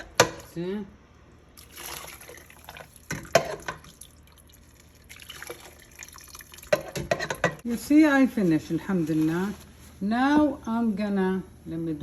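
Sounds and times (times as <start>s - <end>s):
liquid trickling through a strainer: 1.6s - 7.2s.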